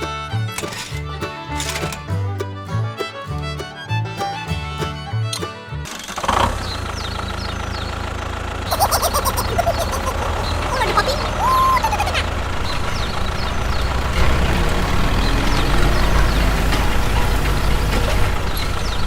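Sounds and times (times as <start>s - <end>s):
small motor droning: 12.2s - 19.0s.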